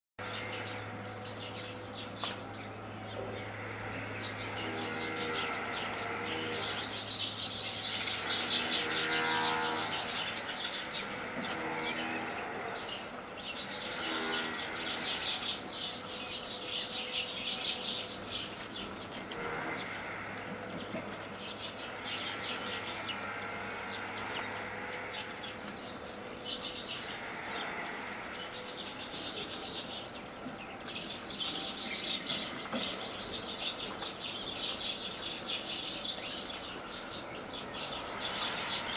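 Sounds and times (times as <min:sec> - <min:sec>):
small birds chirping: 0:00.2 - 0:38.9.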